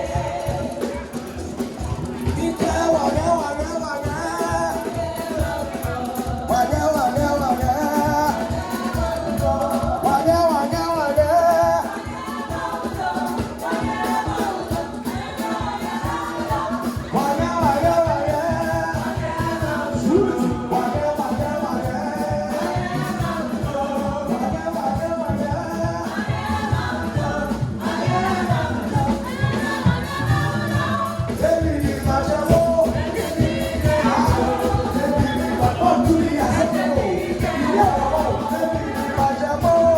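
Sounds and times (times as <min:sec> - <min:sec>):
band accompaniment: 0:00.0 - 0:39.9
group singing gospel in harmony: 0:00.0 - 0:39.9.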